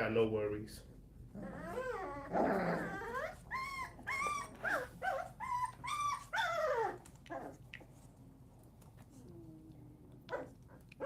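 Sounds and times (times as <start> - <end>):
puppies yelping and whining: 1.3 - 7.7.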